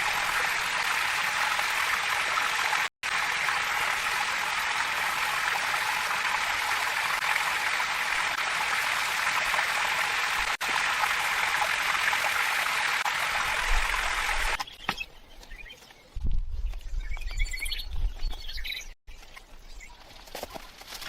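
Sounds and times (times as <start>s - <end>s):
running water rushing: 0.0s - 14.6s.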